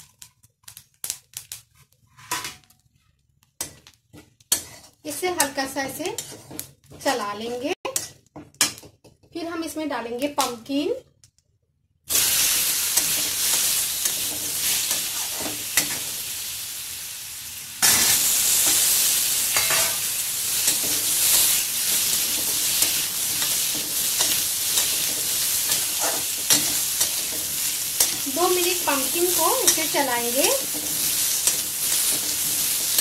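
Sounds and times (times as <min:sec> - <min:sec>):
spatula scraping wok: 0:02.1 - 0:02.7, 0:03.6 - 0:08.8, 0:12.1 - 0:16.4, 0:17.8 - 0:33.0
pumpkin sizzling in oil: 0:12.1 - 0:33.0.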